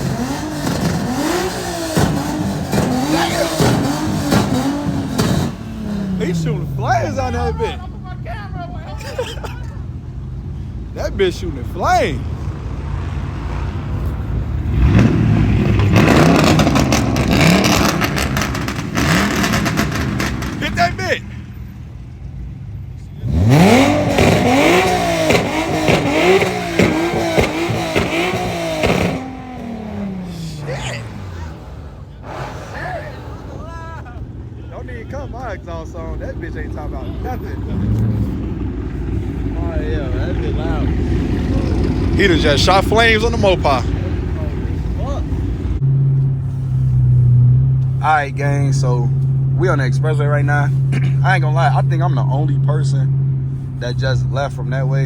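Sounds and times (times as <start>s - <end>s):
exhaust pops and bangs: 0.0s - 7.0s, 14.8s - 21.5s, 23.7s - 33.3s
exhaust pops: 0.0s - 7.7s, 14.0s - 22.4s, 23.3s - 55.0s
car engine revving: 0.0s - 55.0s.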